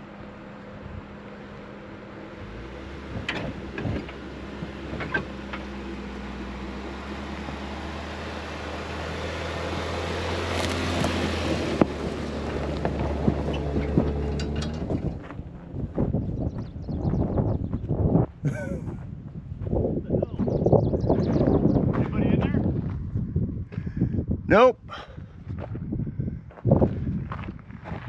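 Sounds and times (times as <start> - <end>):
tyre and road noise: 0.0 - 28.0
vehicle engine drone: 0.0 - 28.0
knocks and rattles: 10.9 - 17.2.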